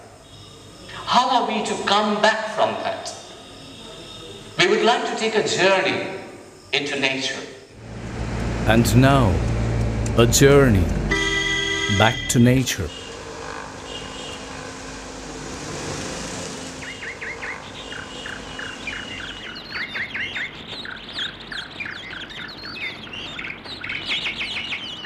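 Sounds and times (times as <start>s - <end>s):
steady rushing noise with hum: 7.8s - 11.1s, 12.0s - 19.5s
small birds chirping: 16.8s - 25.0s.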